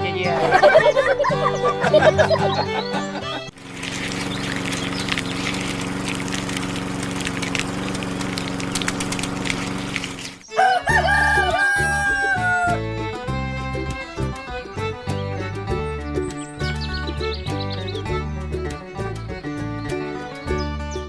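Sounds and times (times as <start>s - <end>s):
rapid fine clicking: 3.5s - 10.5s
steady hum: 3.5s - 10.5s
rooster crowing: 10.5s - 12.8s.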